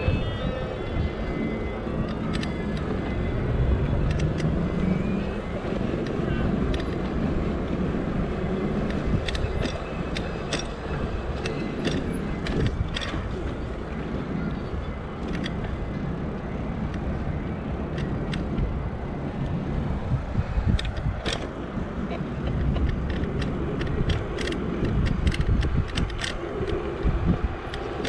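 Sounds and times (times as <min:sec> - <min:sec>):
low rumble of road and wind: 0:00.0 - 0:28.0
bike clicks and rattles: 0:00.3 - 0:28.0.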